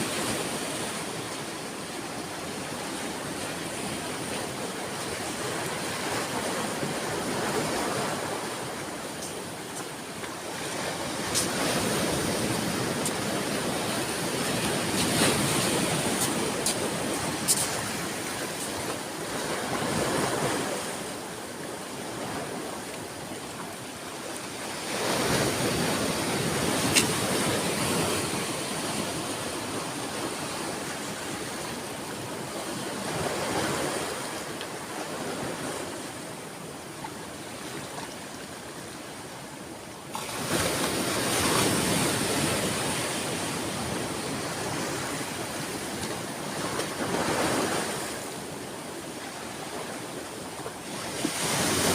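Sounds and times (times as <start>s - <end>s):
sea waves breaking on shore: 0.0s - 51.9s.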